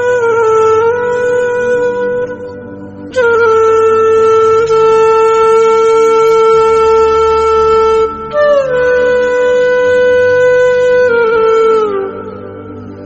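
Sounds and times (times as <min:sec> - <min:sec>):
flute holding long notes: 0:00.0 - 0:13.0
soft low accompaniment: 0:00.0 - 0:13.0.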